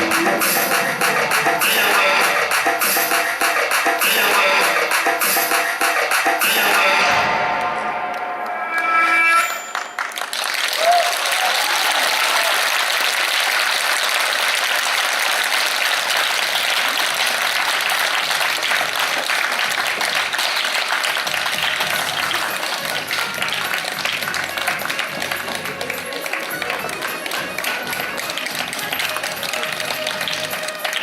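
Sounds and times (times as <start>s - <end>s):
audience applauding: 9.7s - 31.0s.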